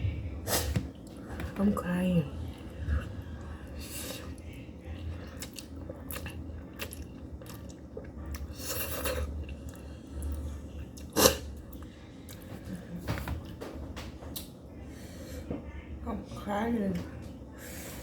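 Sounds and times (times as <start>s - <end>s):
person chewing noodles: 2.5s - 12.4s.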